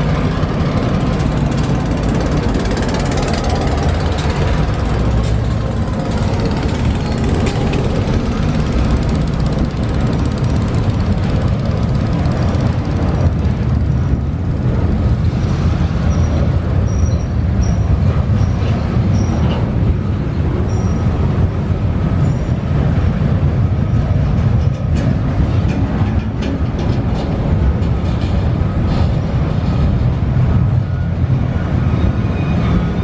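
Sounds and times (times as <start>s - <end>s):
freight train rumbling: 0.0s - 33.0s
high-pitched train squeals: 16.0s - 19.7s, 20.6s - 21.3s, 22.2s - 22.6s, 30.8s - 33.0s.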